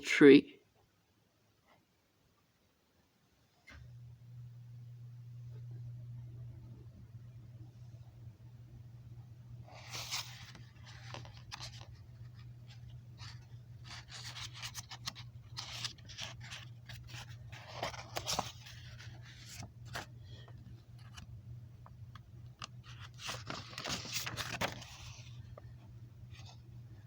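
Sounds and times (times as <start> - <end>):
low steady hum: 3.6 - 27.0
scraping and rustling: 9.7 - 21.2, 22.6 - 25.6.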